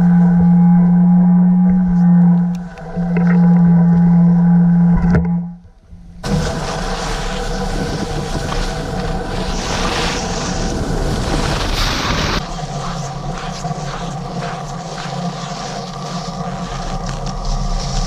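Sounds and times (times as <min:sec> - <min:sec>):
motor whine: 0:00.0 - 0:18.0
rushing hiss: 0:06.2 - 0:18.0.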